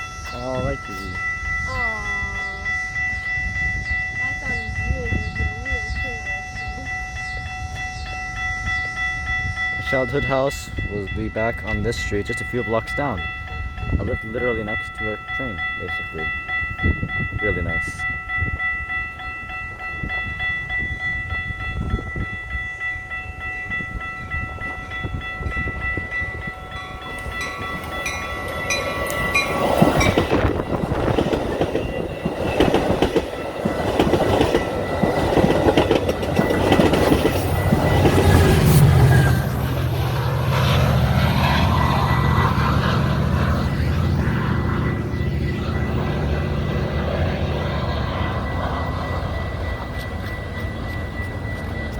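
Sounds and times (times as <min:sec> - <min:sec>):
crossing bells ringing: 0:00.0 - 0:51.9
locomotive engine droning: 0:00.0 - 0:51.9
train rumble: 0:00.0 - 0:51.9
train wheels clacking: 0:24.4 - 0:39.6.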